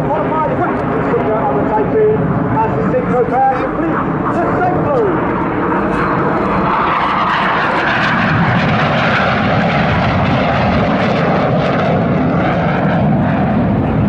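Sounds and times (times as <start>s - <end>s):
jet aircraft flying past: 0.0s - 14.0s.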